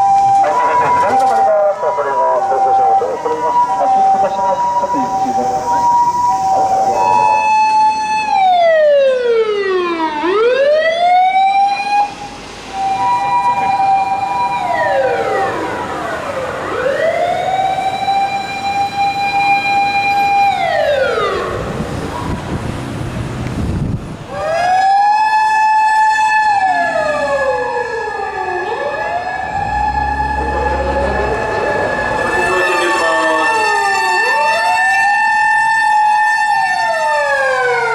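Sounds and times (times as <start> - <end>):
emergency vehicle sirens wailing: 0.0 - 23.4, 24.0 - 37.9
low vehicle rumble: 26.6 - 33.9.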